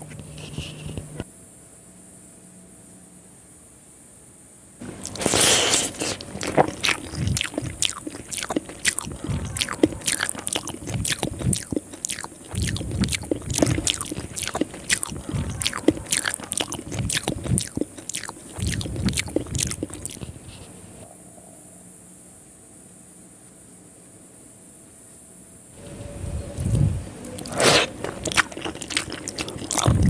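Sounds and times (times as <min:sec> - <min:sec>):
wet chewing with mouth clicks: 0:04.8 - 0:21.0, 0:26.6 - 0:30.0
soft low thuds: 0:09.1 - 0:10.0, 0:15.1 - 0:16.0.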